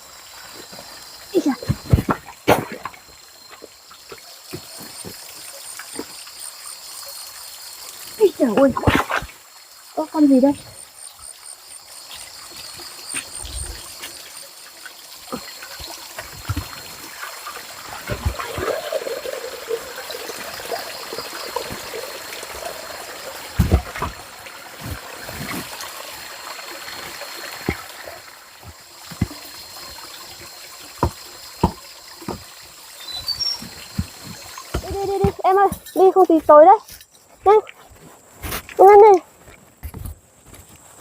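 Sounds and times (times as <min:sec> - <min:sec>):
water trickling: 0:00.0 - 0:37.8.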